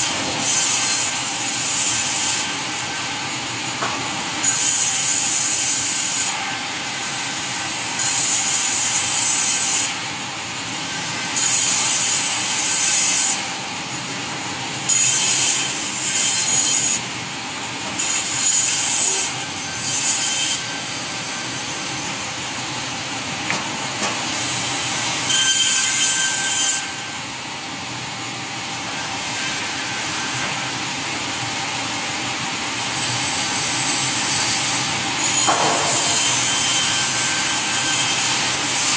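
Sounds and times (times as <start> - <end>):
saw cutting through wood: 0.0 - 3.2, 4.2 - 10.1, 10.9 - 22.9, 23.6 - 27.2, 32.7 - 38.9
sawmill saw running: 28.8 - 38.9.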